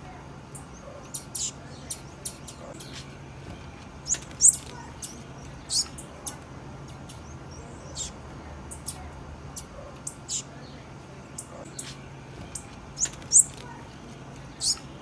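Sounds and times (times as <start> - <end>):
bird chip calls: 0.5 - 3.2, 4.0 - 10.8, 11.4 - 13.8, 14.5 - 15.0.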